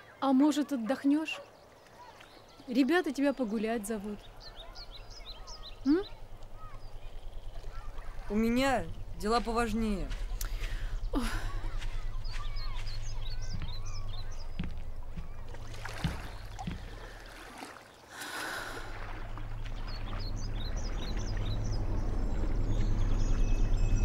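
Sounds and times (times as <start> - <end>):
small birds chirping: 0.0 - 24.0
steady low hum: 4.2 - 17.4, 18.6 - 24.0.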